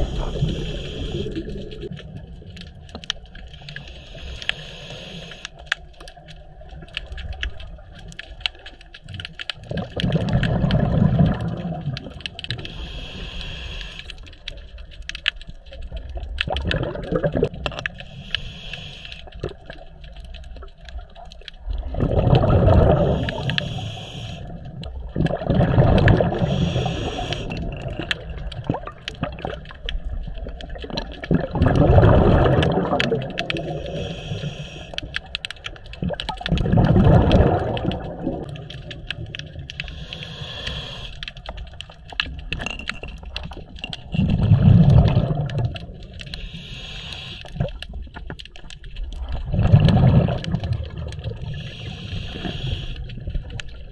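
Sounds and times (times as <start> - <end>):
regulator inhale hiss: 0.0 - 1.9, 3.6 - 5.8, 12.6 - 14.5, 18.0 - 19.5, 23.0 - 24.7, 26.3 - 27.6, 33.5 - 35.3, 39.7 - 41.6, 46.2 - 47.6, 51.4 - 53.3
exhaled air bubbling: 0.0 - 53.9.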